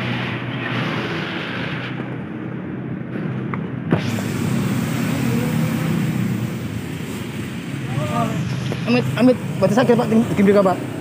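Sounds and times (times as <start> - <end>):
road traffic rumble: 0.0 - 11.0
high hiss: 3.9 - 11.0.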